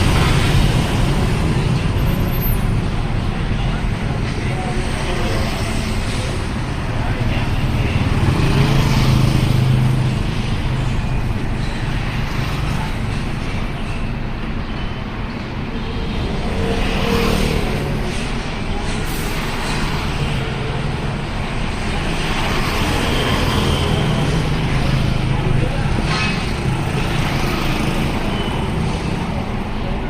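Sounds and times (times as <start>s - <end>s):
road traffic noise: 0.0s - 30.0s.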